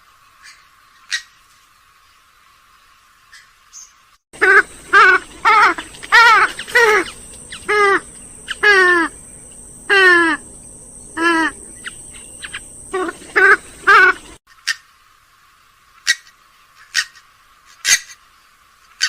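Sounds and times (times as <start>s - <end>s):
swamphen calling: 3.3s - 14.9s.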